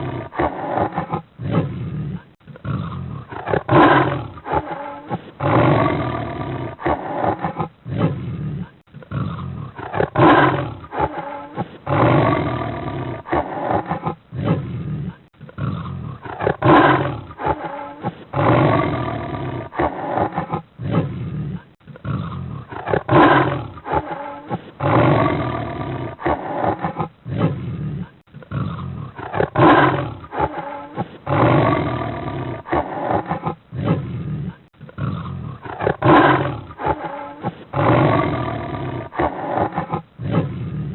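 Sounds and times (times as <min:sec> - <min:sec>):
cheetah growling and snarling: 0:00.0 - 0:40.9.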